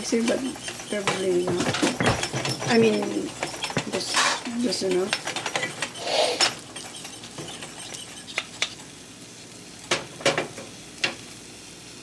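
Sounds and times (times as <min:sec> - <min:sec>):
eggs sizzling: 0:00.0 - 0:02.0, 0:02.7 - 0:11.6
utensil clinking against dishes: 0:00.0 - 0:09.0.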